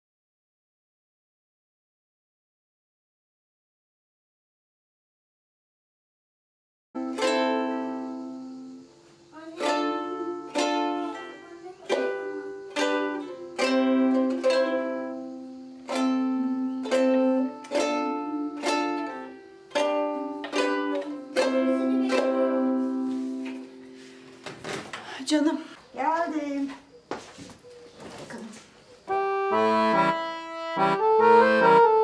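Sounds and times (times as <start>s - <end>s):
ukulele chords strummed: 7.0s - 24.0s.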